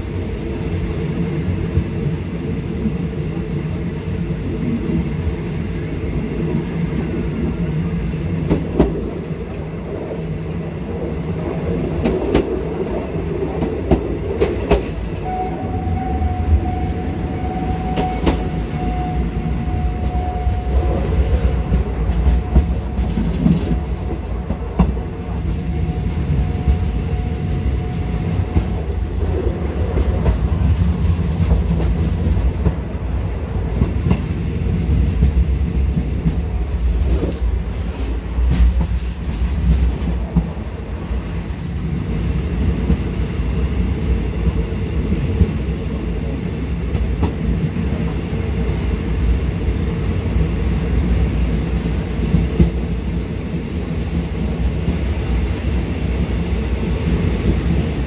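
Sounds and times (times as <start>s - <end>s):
train wheels rumbling on rails: 0.0s - 58.0s
train wheels clicking: 11.8s - 43.6s.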